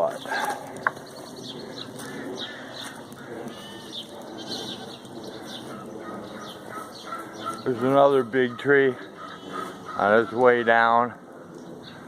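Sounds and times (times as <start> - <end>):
goats bleating: 3.2 - 5.0.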